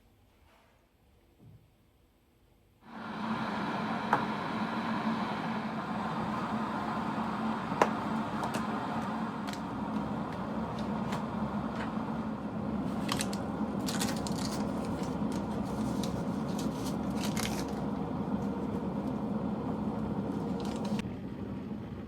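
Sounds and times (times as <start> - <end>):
small motor running: 12.8 - 21.0.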